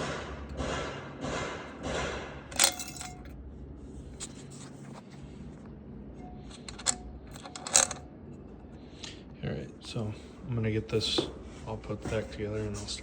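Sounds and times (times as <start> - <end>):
metal parts scraping: 2.5 - 3.4, 6.4 - 8.1.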